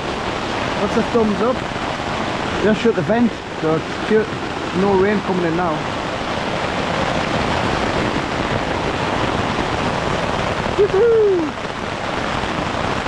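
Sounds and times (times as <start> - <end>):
heavy rain on a tent: 0.0 - 13.0.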